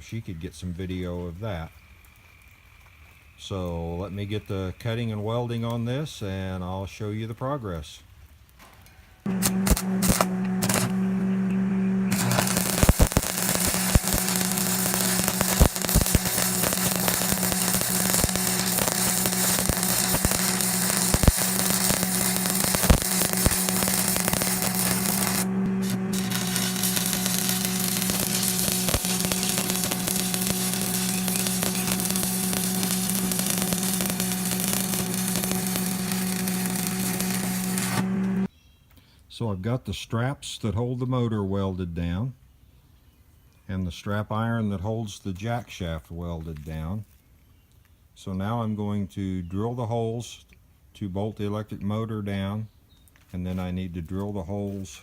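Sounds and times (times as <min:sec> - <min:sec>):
sharp pops: 0:09.3 - 0:38.5
welder machine hum: 0:09.3 - 0:38.5
welding arc crackling: 0:09.3 - 0:38.5.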